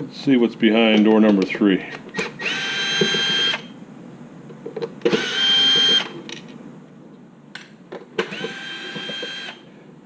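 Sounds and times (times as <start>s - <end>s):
cordless drill motor whine: 2.2s - 3.7s, 5.1s - 6.2s, 8.2s - 9.7s.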